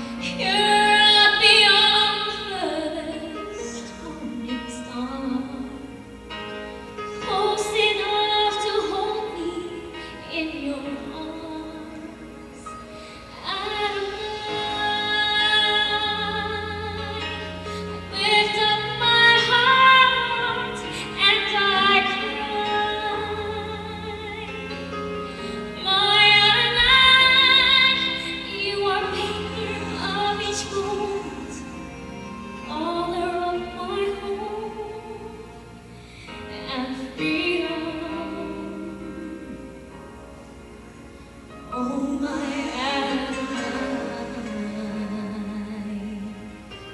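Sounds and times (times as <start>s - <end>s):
woman singing worship song: 25.4s - 31.9s, 41.7s - 46.7s.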